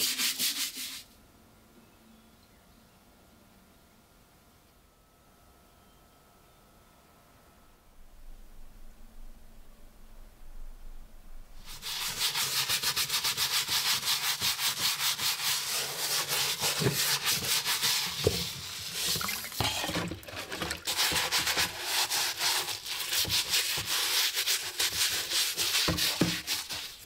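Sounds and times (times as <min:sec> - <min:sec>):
sanding strokes on steel helmet: 0:00.0 - 0:01.1, 0:11.7 - 0:19.2, 0:20.8 - 0:27.0.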